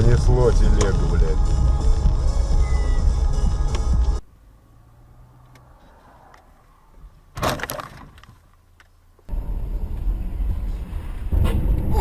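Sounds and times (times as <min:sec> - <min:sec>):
car driving rumble: 0:00.0 - 0:12.0
car collision bang: 0:07.3 - 0:08.2.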